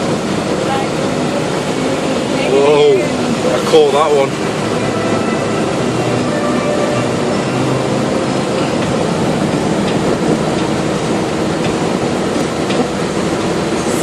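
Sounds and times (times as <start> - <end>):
car road noise: 0.0 - 14.0
wind rushing: 3.0 - 13.8.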